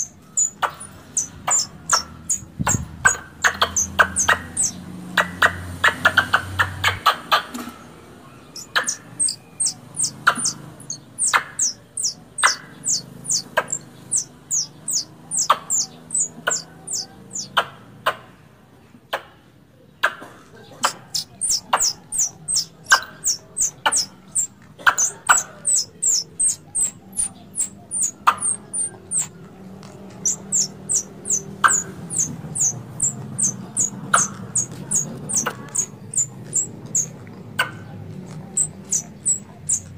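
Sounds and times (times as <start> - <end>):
squirrel call lure chips: 8.6 - 17.5, 20.9 - 29.3, 30.2 - 37.1.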